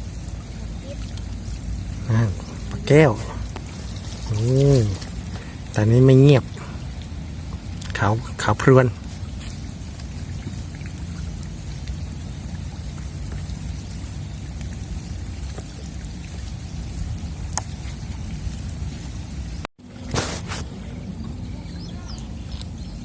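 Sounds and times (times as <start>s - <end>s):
heavy rain falling: 0.0s - 9.2s
rain drop ticks: 0.2s - 18.8s.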